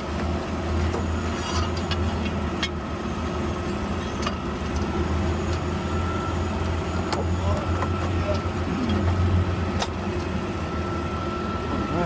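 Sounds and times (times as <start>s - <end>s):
garbage truck engine humming: 0.0s - 12.0s.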